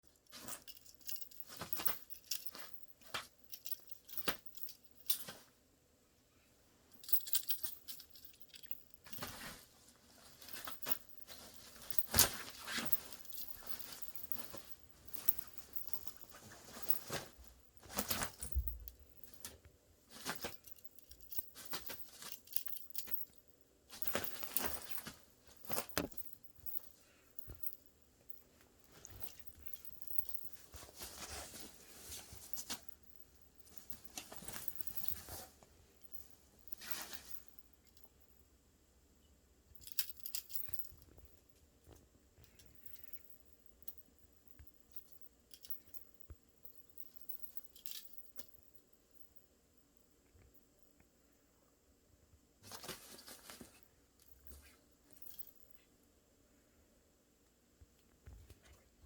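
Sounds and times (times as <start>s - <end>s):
cat scratching and rustling: 8.3s - 27.6s, 28.6s - 37.5s, 52.6s - 53.9s.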